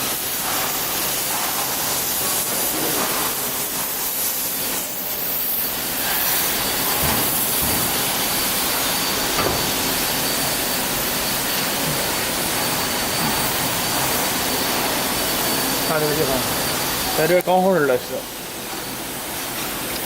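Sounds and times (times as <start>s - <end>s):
panel saw hissing: 4.4s - 19.2s.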